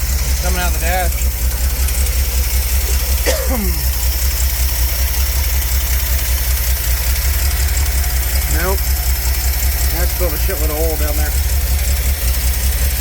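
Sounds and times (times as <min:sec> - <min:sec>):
engine idling: 0:00.0 - 0:13.0
person brief vocal sound: 0:03.2 - 0:03.8.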